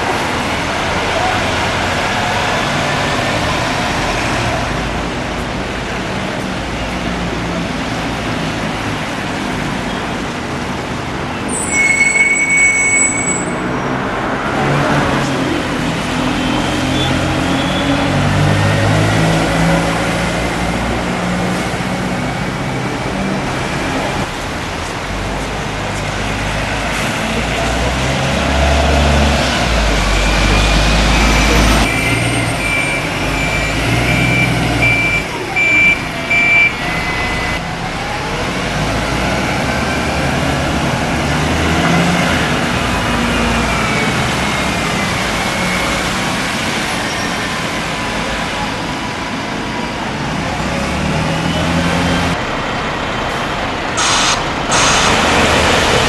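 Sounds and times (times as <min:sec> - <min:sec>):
short high beeps: 0:11.6 - 0:13.6, 0:32.6 - 0:37.5
heavy vehicle engine running: 0:13.7 - 0:56.0.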